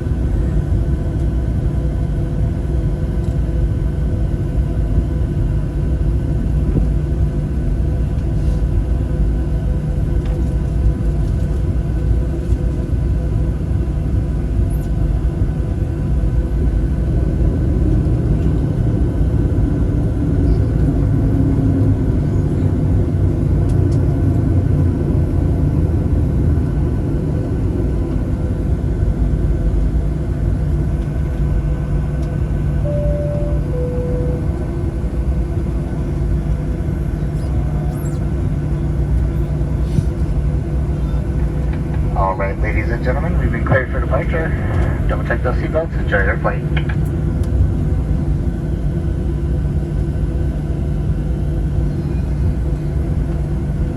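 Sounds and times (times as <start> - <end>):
aircraft cabin rumble: 0.0 - 53.9
two-note cabin chime: 32.8 - 34.6.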